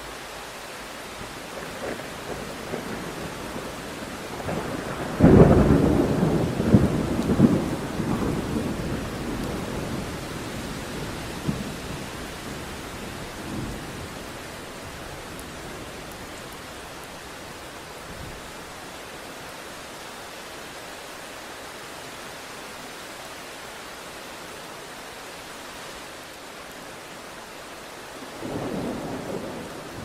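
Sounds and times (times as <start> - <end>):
steady rain: 0.0 - 30.0
thunderclap rumbling: 1.6 - 14.2, 28.4 - 30.0.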